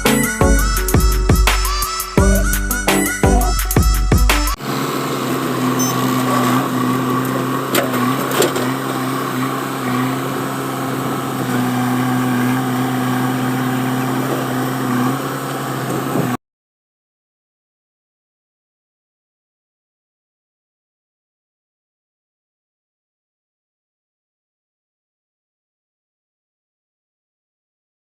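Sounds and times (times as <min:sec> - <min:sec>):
diesel engine running: 0:00.0 - 0:16.3.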